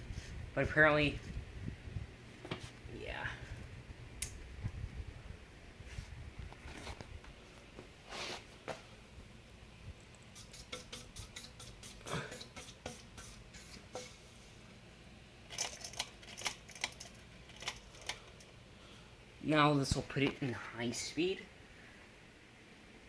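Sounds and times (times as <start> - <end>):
ceiling fan motor humming: 0.0 - 23.0
light irregular clicks and ticks: 15.5 - 18.6.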